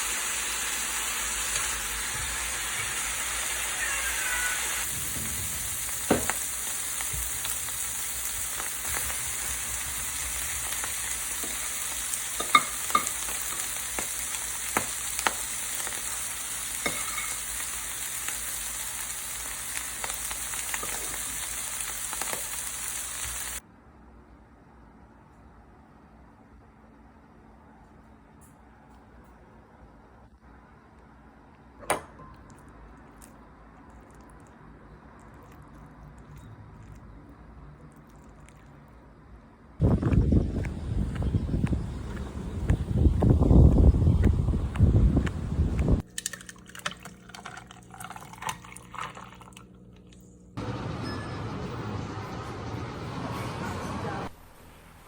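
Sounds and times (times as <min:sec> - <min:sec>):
food sizzling in a frying pan: 0:00.0 - 0:23.6.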